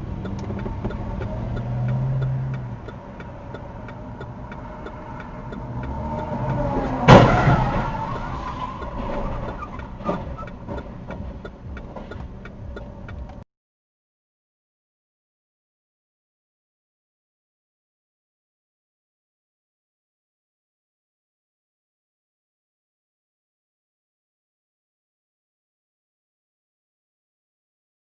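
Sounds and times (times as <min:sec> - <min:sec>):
faint ticking: 0:00.0 - 0:07.0, 0:08.7 - 0:13.4
car engine and road noise: 0:00.0 - 0:13.5
vehicle collision crash: 0:06.7 - 0:10.9.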